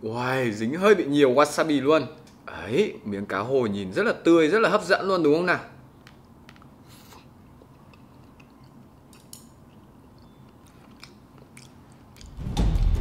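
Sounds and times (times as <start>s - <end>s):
mouth chewing clicks and smacks: 6.2s - 12.4s
loud music: 12.4s - 13.0s.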